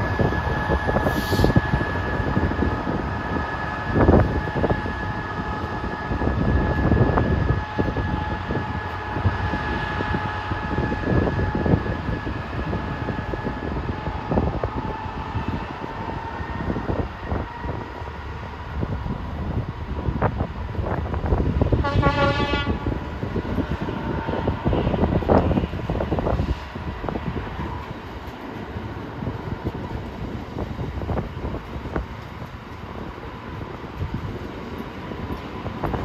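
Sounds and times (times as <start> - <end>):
train knocks and clatter: 0.0 - 36.0
train whine and rumble: 0.0 - 36.0.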